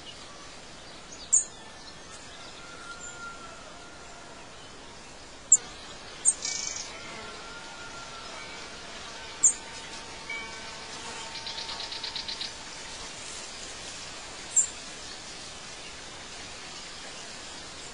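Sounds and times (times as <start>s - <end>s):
outdoor ambience hiss: 0.0s - 17.9s
songbirds chirping: 0.0s - 17.9s
bird trill: 5.5s - 6.9s, 8.0s - 12.7s.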